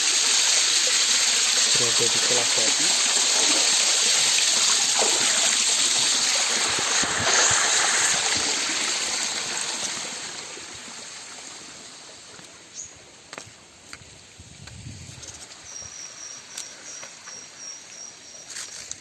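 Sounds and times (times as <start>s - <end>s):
mountain stream rushing: 0.0s - 12.5s.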